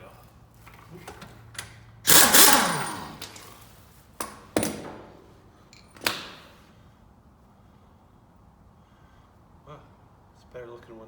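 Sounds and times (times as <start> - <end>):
impact wrench whirring: 2.0 - 3.4.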